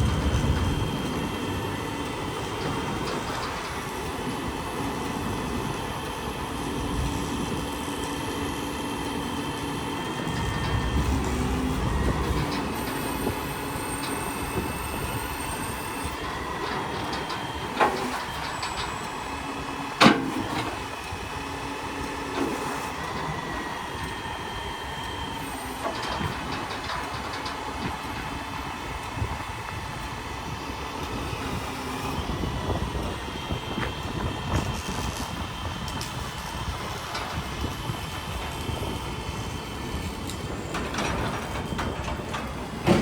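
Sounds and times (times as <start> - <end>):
truck mechanical whine: 0.0 - 43.0.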